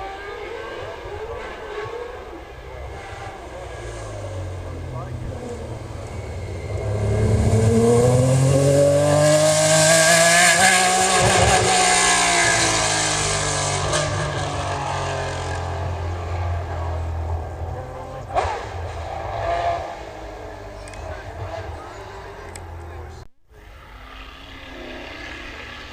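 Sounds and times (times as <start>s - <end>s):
car engine revving past: 0.0s - 22.4s.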